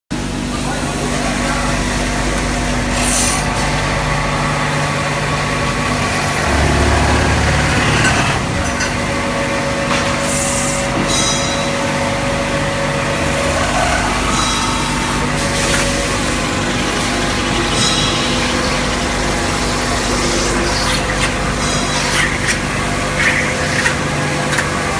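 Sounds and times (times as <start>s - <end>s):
heavy machine rumble: 0.3s - 24.9s
machine motor hum: 1.0s - 11.0s.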